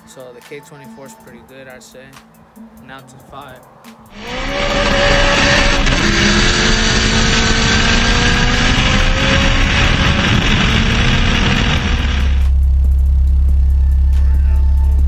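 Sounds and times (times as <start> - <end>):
wind rushing past car: 4.1 - 12.5
car engine at full throttle: 4.1 - 15.0.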